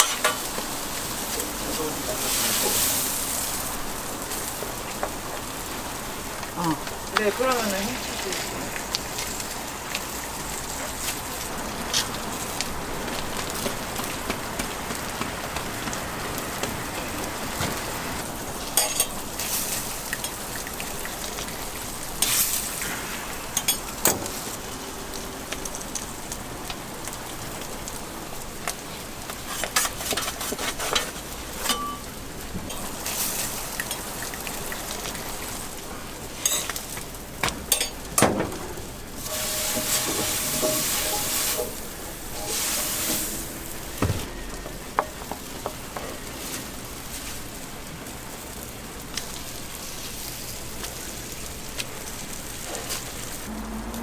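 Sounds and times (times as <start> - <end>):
food sizzling on a griddle: 0.0 - 54.0
utensils knocking and scraping: 39.2 - 46.2.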